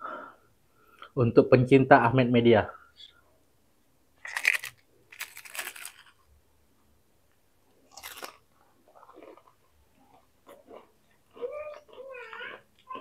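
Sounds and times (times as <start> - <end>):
chewing crunches: 4.2 - 6.3, 7.8 - 13.0
crunching bites of fried food: 4.2 - 6.4, 7.8 - 13.0.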